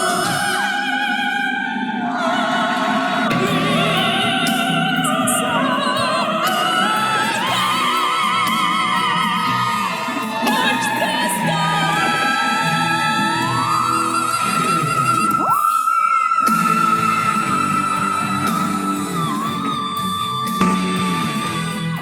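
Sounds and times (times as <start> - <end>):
operatic singing: 0.0 - 22.0
musical accompaniment: 3.3 - 15.4, 16.5 - 22.0.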